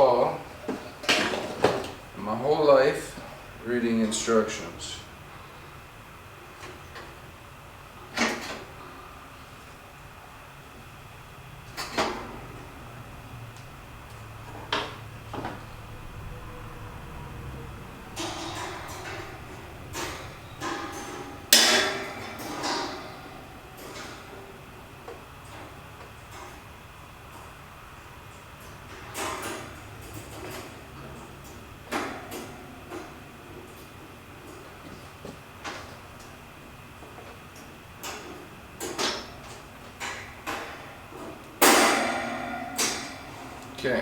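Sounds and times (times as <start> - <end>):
sheet metal parts clanking: 14.5 - 24.8, 41.6 - 44.0
heater parts knocking together: 18.1 - 26.6, 38.0 - 44.0.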